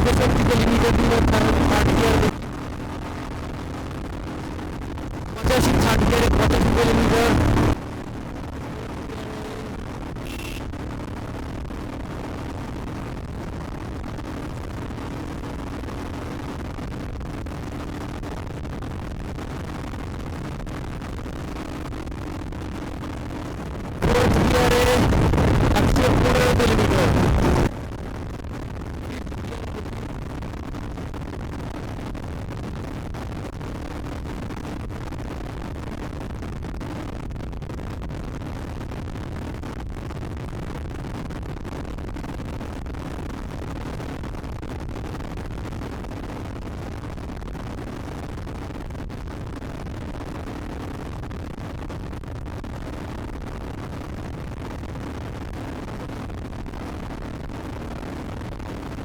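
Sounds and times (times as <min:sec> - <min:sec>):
motorcycle engine at full throttle: 0:00.0 - 0:27.9.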